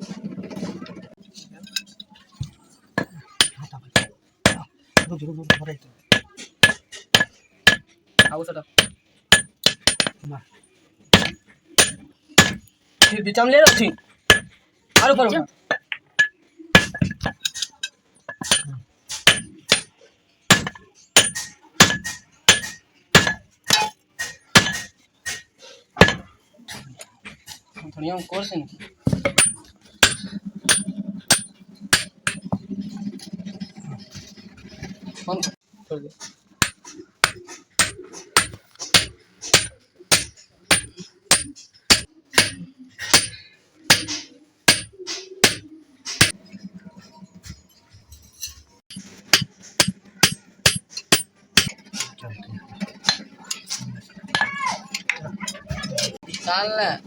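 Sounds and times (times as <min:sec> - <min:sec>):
hammer striking iron: 0:03.0 - 0:10.2, 0:11.1 - 0:17.7, 0:18.3 - 0:19.9, 0:20.5 - 0:26.3, 0:29.1 - 0:32.7, 0:36.6 - 0:46.4, 0:48.9 - 0:51.9.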